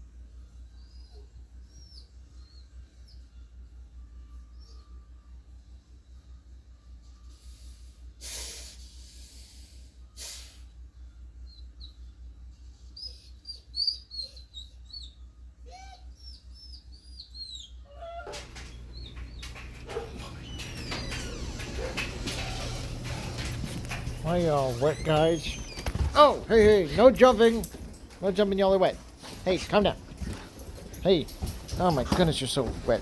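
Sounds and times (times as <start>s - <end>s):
animal chirping and whining: 0.7s - 3.2s, 12.9s - 26.6s.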